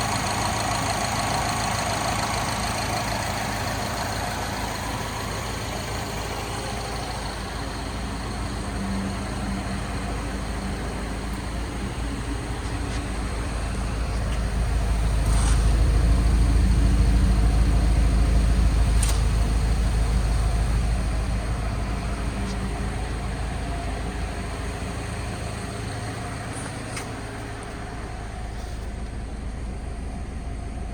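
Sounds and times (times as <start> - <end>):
car engine running: 0.0 - 30.9
sharp clicks: 18.9 - 19.4.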